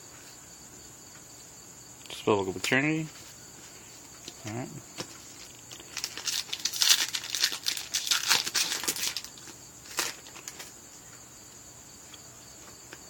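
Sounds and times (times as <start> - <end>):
foil wrapper crinkling: 5.0 - 10.8.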